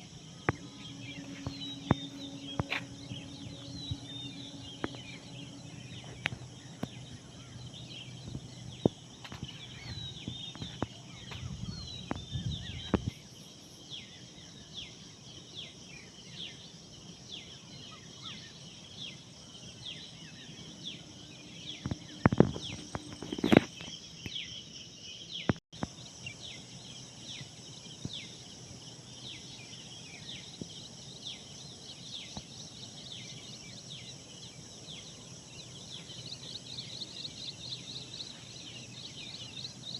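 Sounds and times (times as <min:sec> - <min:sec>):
low hum: 0:00.0 - 0:13.6
small birds chirping: 0:00.0 - 0:39.9.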